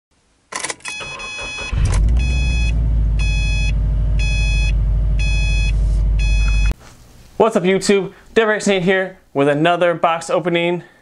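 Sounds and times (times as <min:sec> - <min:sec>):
dashboard warning chime beeping: 0:00.9 - 0:06.8
car engine starting and idling: 0:01.0 - 0:06.8.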